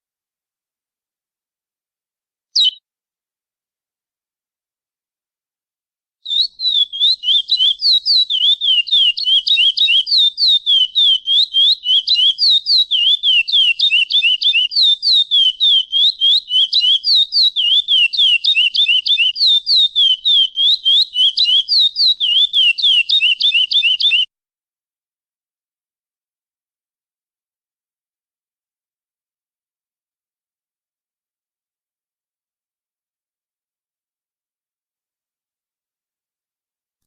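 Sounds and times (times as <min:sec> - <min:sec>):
finch whistling short notes: 0:02.6 - 0:02.8.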